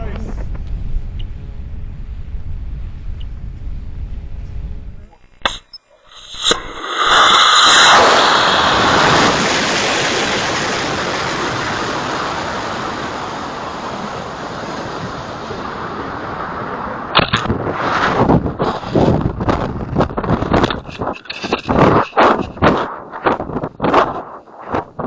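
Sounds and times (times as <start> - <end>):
rocket motor exhaust roar: 0.0 - 5.1
uneven choppy noise: 0.0 - 8.0.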